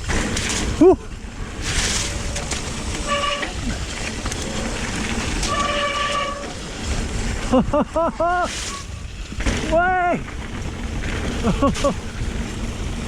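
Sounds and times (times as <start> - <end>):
tyres rushing through water and mud: 0.0 - 13.0
short horn toot: 3.0 - 3.7, 5.4 - 6.6.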